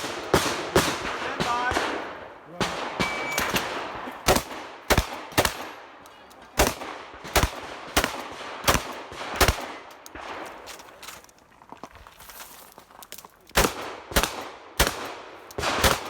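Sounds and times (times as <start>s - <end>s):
shotgun shots: 0.0s - 5.9s, 6.6s - 10.7s, 13.6s - 16.0s
shot timer beep: 2.9s - 3.5s.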